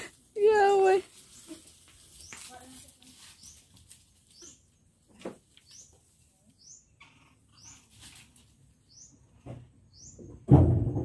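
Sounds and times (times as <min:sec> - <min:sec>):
bird chirping: 0:03.2 - 0:10.4.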